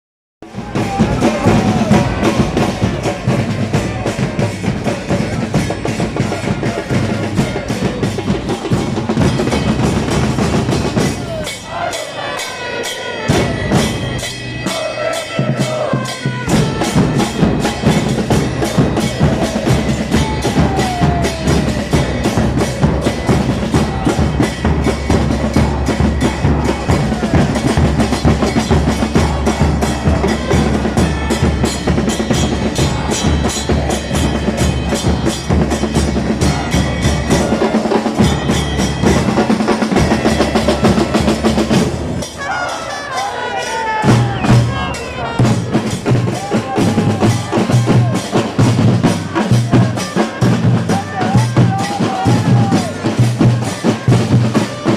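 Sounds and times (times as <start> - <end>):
drums beating fast rhythm: 0.4 - 54.9
fans singing in unison: 0.5 - 54.9.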